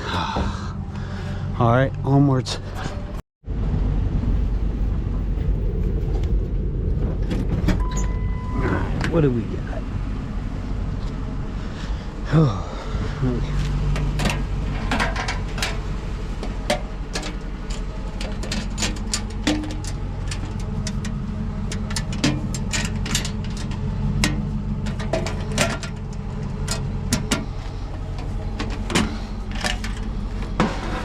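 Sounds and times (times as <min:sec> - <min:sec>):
low motor hum: 0:00.0 - 0:31.0
clinks and knocks of scrap: 0:13.9 - 0:31.0.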